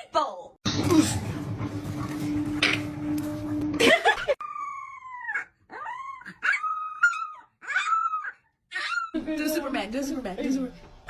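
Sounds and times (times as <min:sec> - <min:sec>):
dog howling: 0:04.4 - 0:09.2.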